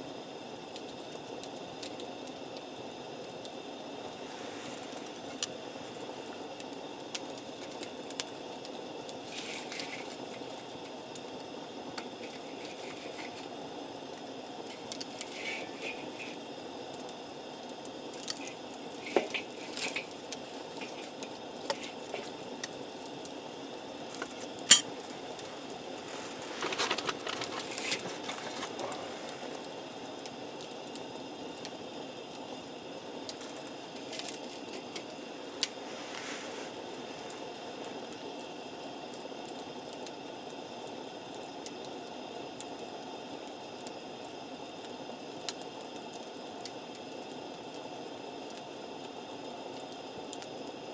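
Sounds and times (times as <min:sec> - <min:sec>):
steady low hiss: 0:01.5 - 0:39.4.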